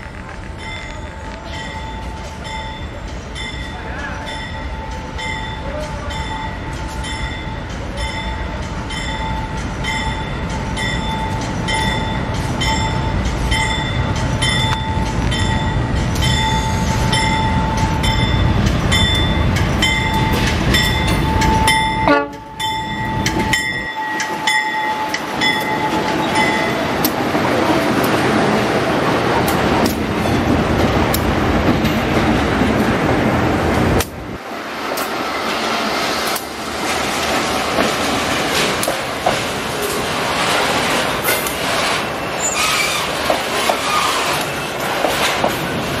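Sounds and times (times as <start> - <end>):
locomotive engine and wheels: 0.0 - 46.0
level crossing bell ringing: 4.3 - 26.9.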